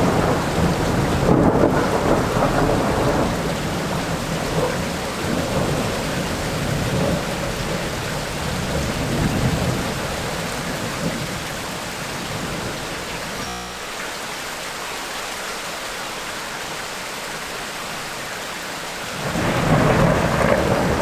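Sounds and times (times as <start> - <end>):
rolling thunder: 0.0 - 13.4, 19.1 - 21.0
heavy rain: 0.0 - 21.0.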